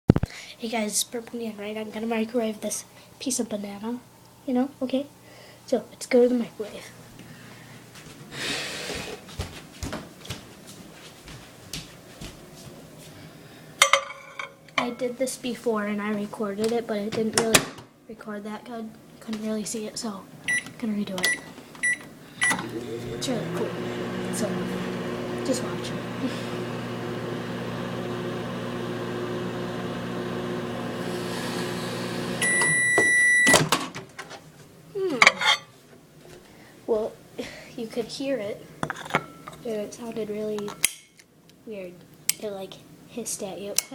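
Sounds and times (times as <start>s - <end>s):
footsteps: 7.9s - 13.3s
microwave oven humming: 20.4s - 33.7s
microwave long beep: 20.5s - 22.6s, 32.0s - 33.6s.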